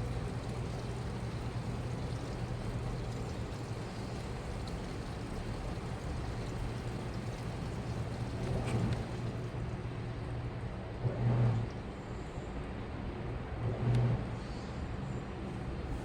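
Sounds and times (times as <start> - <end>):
drum churning: 0.0 - 9.7
washing machine motor hum: 0.0 - 10.7.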